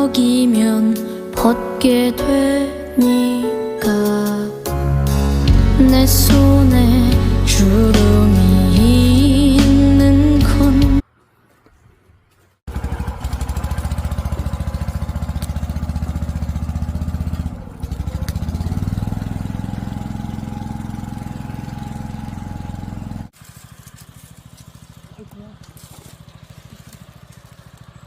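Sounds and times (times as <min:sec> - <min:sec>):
background music: 0:00.0 - 0:11.0
small engine idling: 0:12.7 - 0:28.0.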